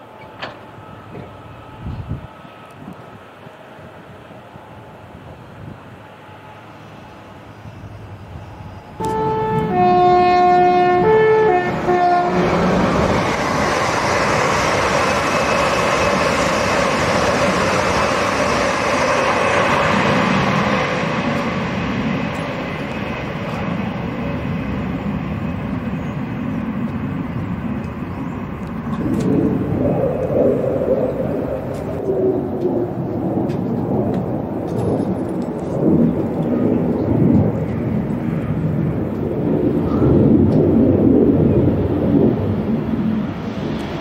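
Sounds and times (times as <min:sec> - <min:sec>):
train passing at speed: 0:00.0 - 0:44.0
two-tone train horn: 0:09.0 - 0:13.2.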